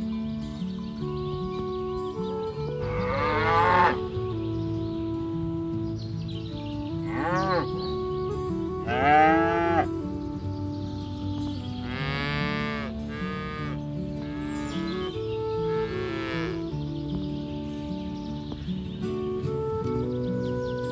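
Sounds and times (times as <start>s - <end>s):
background music of held notes: 0.0s - 20.9s
cattle mooing: 2.8s - 4.1s, 7.1s - 7.7s, 8.8s - 9.9s, 11.8s - 14.9s, 15.7s - 16.6s.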